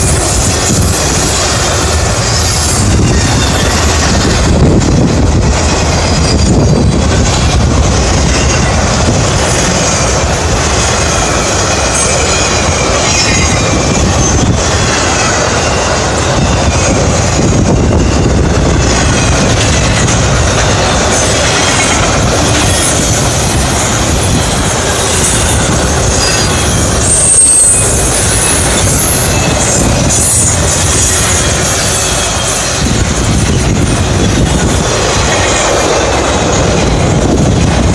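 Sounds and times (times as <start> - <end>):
high-pitched wheel squeals: 0.0 - 4.3, 5.8 - 7.1, 10.9 - 35.7
freight train wheels rumbling: 0.0 - 37.9.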